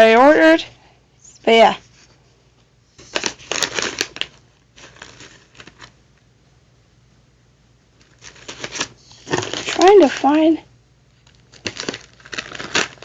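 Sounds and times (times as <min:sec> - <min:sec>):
snack bags rustling: 0:03.0 - 0:06.0, 0:08.0 - 0:10.5, 0:11.2 - 0:13.0.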